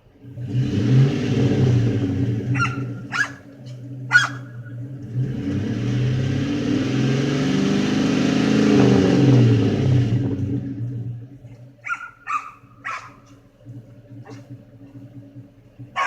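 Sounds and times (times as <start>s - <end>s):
car engine revving: 0.0s - 11.8s
dog yipping: 2.5s - 3.5s, 4.1s - 4.6s, 11.8s - 13.3s.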